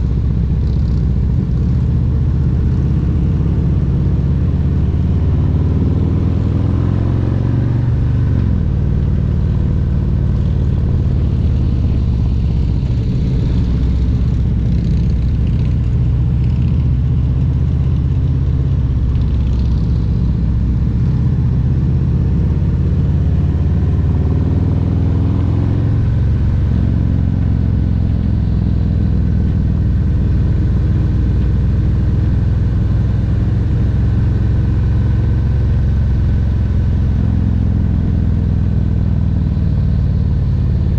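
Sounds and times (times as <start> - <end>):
motorcycle engine rumbling: 6.9 - 23.4, 25.5 - 34.1.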